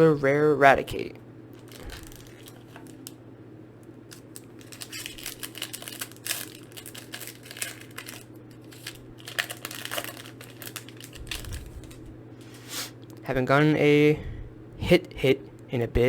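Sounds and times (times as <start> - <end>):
foil wrapper crinkling: 1.6 - 3.2, 4.1 - 12.8.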